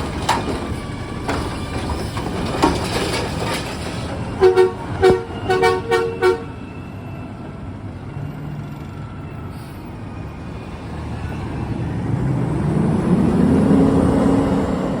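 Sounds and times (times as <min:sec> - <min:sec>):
truck engine revving: 0:11.9 - 0:15.0.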